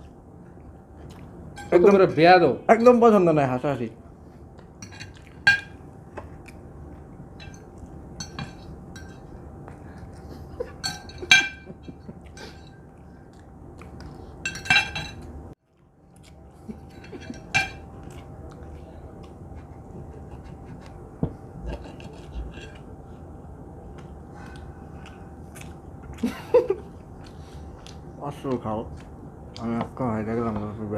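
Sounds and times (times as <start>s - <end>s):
faint steady hum: 0.0s - 30.9s
cutlery clinking on plates: 7.4s - 9.3s, 10.6s - 12.8s, 14.4s - 15.3s, 16.7s - 18.3s.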